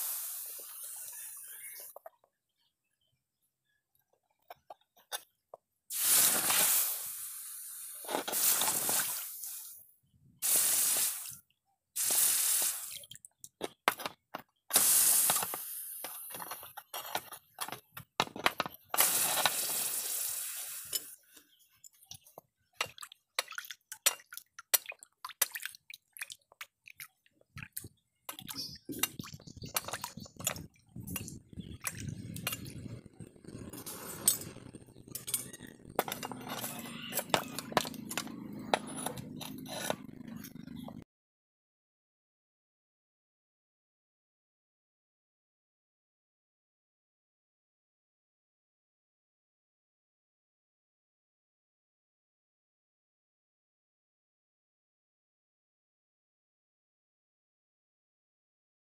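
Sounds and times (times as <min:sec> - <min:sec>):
hot steel hissing in water: 0:00.0 - 0:01.9, 0:05.9 - 0:09.8, 0:10.4 - 0:11.4, 0:12.0 - 0:13.1, 0:14.7 - 0:16.3, 0:19.0 - 0:21.2
crackling and bubbling: 0:14.7 - 0:41.0
water sloshing: 0:22.8 - 0:31.1.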